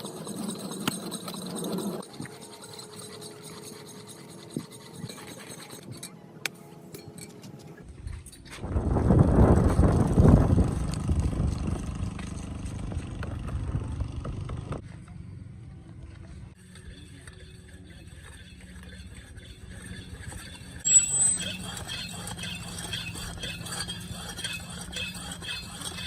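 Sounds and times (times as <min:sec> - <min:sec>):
motor vehicle rumble: 0:08.6 - 0:16.6.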